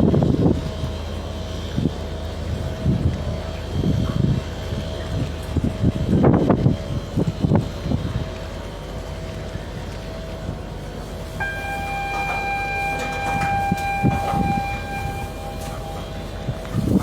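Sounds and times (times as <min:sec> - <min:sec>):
ferry engine rumbling: 0:00.0 - 0:17.0
long steady horn tone: 0:10.0 - 0:17.0.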